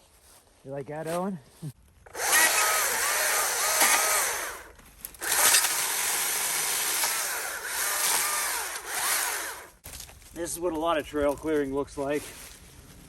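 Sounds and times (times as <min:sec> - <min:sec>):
electric saw cutting brush: 0:02.1 - 0:09.8.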